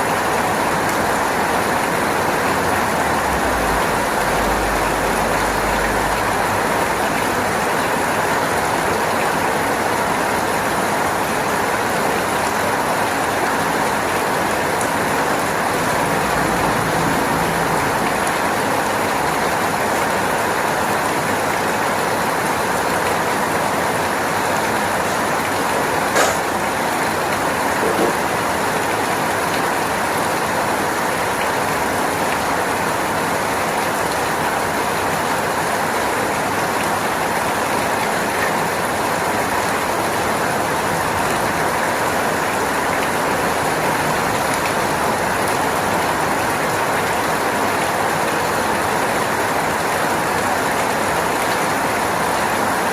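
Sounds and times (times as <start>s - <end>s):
steady rain: 0.0s - 52.9s.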